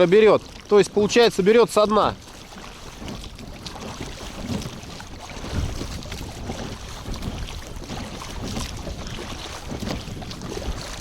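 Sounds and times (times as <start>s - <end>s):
waves slapping against boat: 0.0s - 11.0s
wind buffeting microphone: 0.0s - 11.0s.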